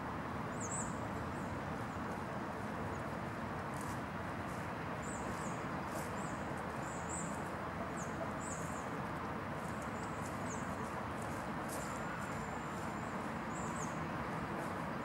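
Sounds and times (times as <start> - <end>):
small birds chirping: 11.7 - 14.0.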